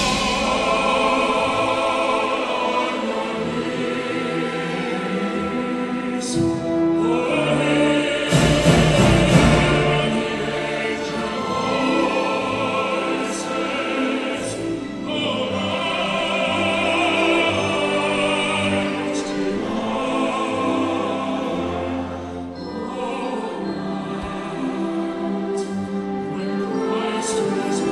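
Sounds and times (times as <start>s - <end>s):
vocal ensemble singing chords: 0.0s - 27.9s.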